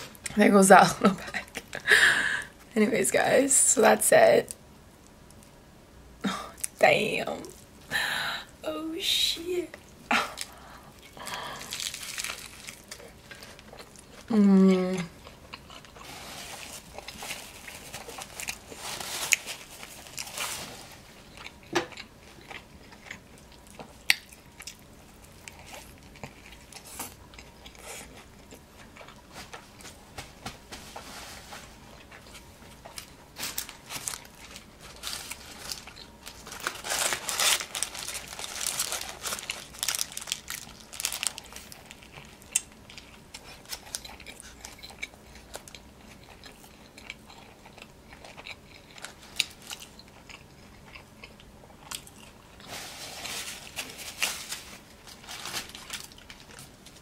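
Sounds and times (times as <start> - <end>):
paper wrapper crinkling: 11.2 - 13.7, 16.0 - 21.1, 32.8 - 44.0, 52.6 - 57.0
chewing and biting a burger: 15.2 - 29.3, 33.7 - 52.7.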